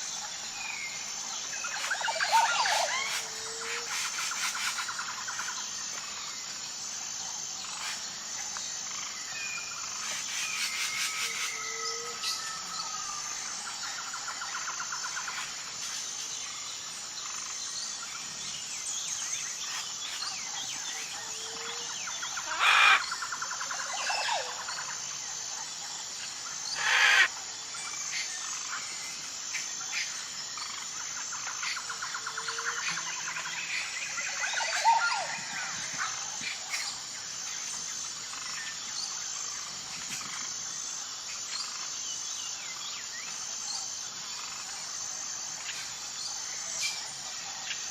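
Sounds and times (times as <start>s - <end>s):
insect chorus: 0.0s - 47.9s
birds chirping and calling: 1.6s - 5.5s, 21.0s - 24.6s, 26.7s - 27.3s
loud short bird calls: 26.8s - 27.3s.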